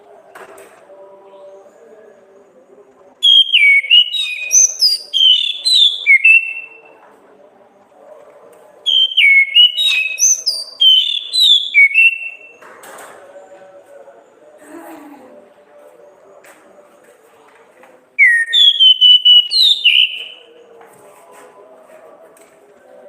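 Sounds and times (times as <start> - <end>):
thrush singing whistled notes: 3.2 - 6.9, 8.9 - 12.6, 18.2 - 20.6.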